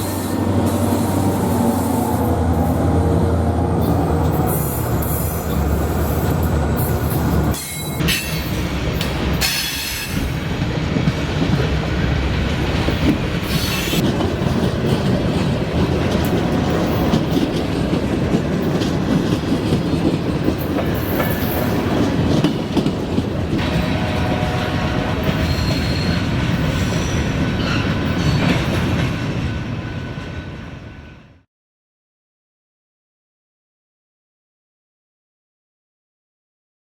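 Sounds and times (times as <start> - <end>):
freight train wheels clacking: 3.8 - 30.2
high wheel squeals: 25.2 - 28.6.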